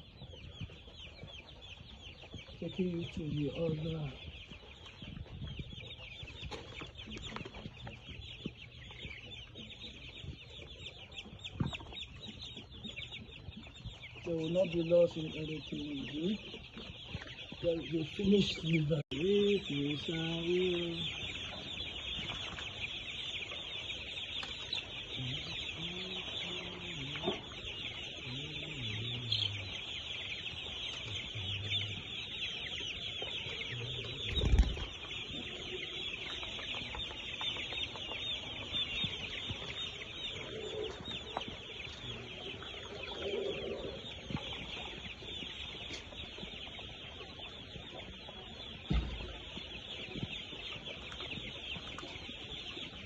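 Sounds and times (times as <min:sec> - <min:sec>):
chicks cheeping: 0:00.0 - 0:53.0.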